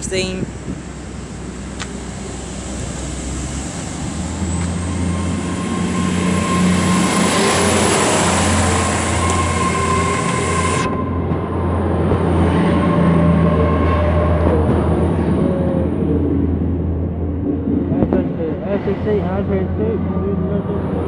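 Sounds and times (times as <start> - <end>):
train accelerating past: 0.0 - 21.0
high whine rising in pitch: 2.4 - 17.0.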